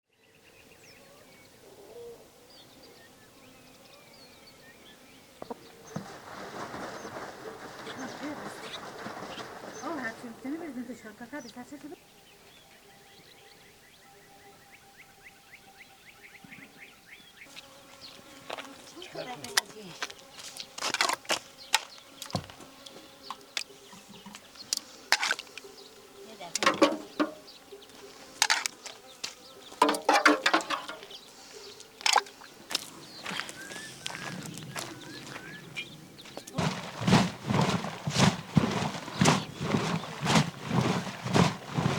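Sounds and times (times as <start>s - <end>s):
small birds chirping: 0.1s - 41.9s
low cooing call: 1.1s - 2.5s
objects clicking and knocking: 26.6s - 27.4s, 28.4s - 28.8s, 29.8s - 31.1s
sharp knocks: 26.6s - 27.4s
dull low thump: 36.6s - 41.9s.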